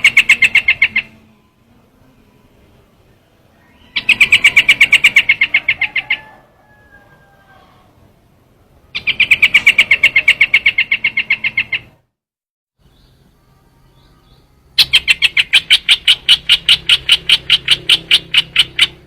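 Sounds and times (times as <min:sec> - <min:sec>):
bird rapid chattering call: 0:00.0 - 0:01.2, 0:03.8 - 0:06.3, 0:09.0 - 0:12.0, 0:14.8 - 0:19.0.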